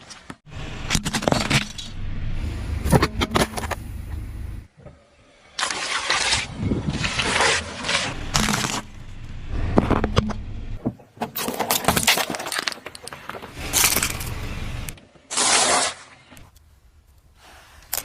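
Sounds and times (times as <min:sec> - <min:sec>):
engine and tyre rumble: 0:00.3 - 0:05.4, 0:06.6 - 0:15.3.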